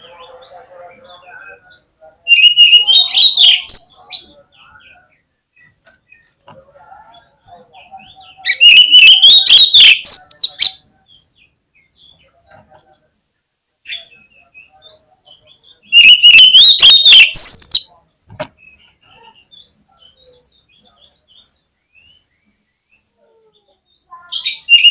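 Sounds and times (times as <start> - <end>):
faint bird chirping: 0.0 - 24.9
bird song with rising whistles: 8.5 - 10.6, 15.9 - 17.8, 24.6 - 24.9.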